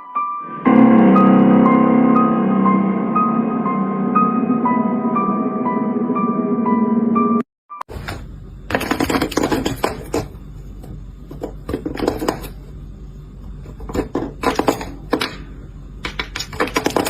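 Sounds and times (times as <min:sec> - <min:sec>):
steady low hum: 0:08.0 - 0:16.4.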